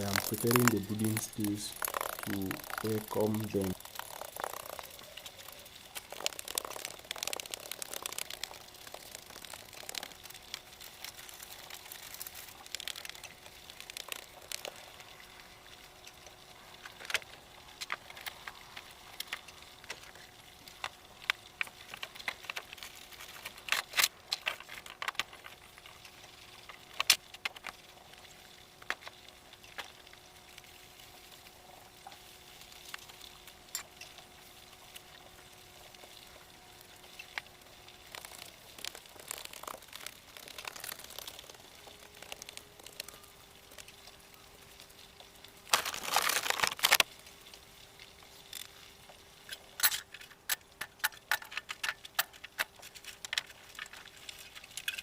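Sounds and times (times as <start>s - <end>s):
faint steady hum: 0.0s - 55.0s
rustling of things handled: 49.4s - 55.0s.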